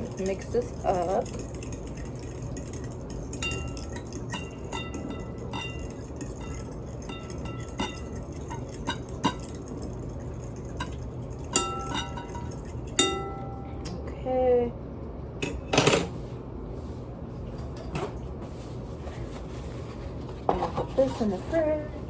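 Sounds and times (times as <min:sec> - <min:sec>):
utensil clinking against bowl: 0:00.0 - 0:14.0
steady low hum: 0:00.0 - 0:22.0.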